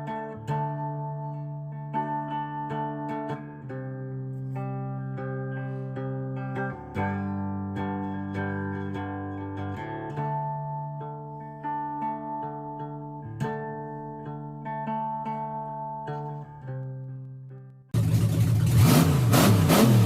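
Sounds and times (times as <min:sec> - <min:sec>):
strummed guitar chords: 0:00.0 - 0:20.0.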